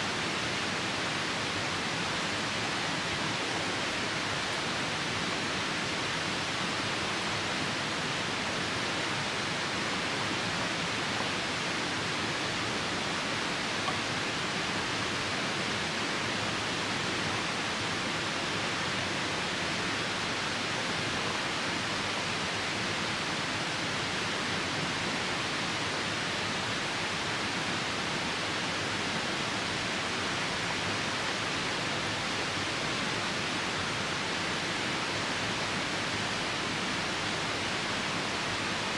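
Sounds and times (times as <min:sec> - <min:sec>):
river rushing: 0:00.0 - 0:38.9.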